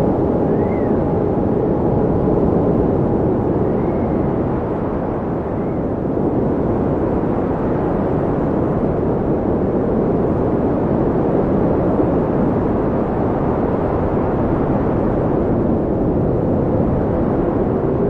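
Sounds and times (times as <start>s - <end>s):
loud deep wind rush: 0.0s - 18.0s.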